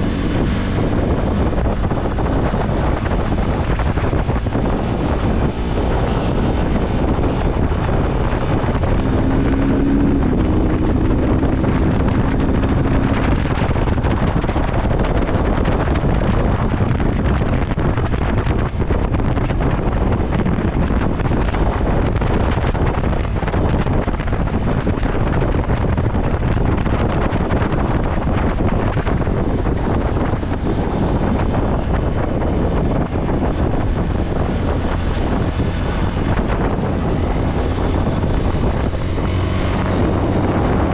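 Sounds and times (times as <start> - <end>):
motorcycle running: 0.0 - 40.9
wind rushing over microphone: 0.0 - 40.9.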